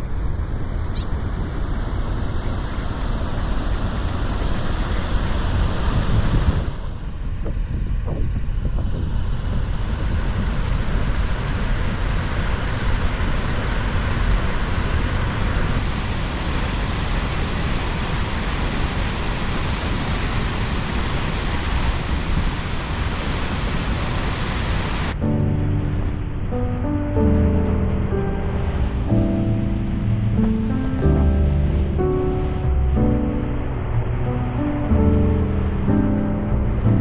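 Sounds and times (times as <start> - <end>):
waterfall roaring: 12.2 - 25.2
music: 25.2 - 37.0.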